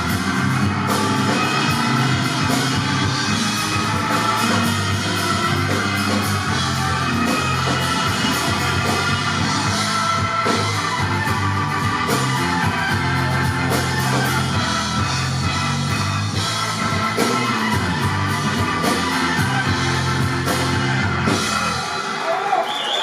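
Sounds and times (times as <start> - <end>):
bass guitar: 0.0 - 22.0
electric guitar: 0.0 - 22.1
drum kit with cymbal beat: 0.0 - 22.5.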